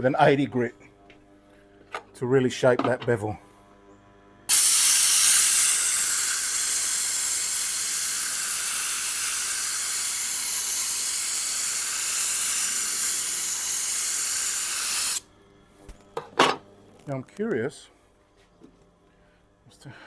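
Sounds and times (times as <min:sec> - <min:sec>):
blade grinding on abrasive: 0:04.5 - 0:15.2.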